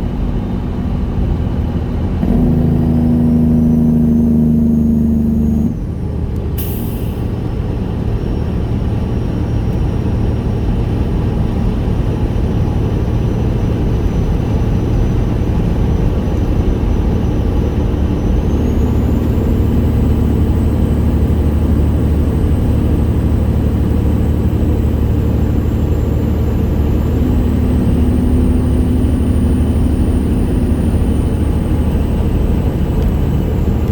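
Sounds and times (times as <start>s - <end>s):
truck diesel engine rumbling: 0.0s - 33.9s
high whine: 2.2s - 6.0s.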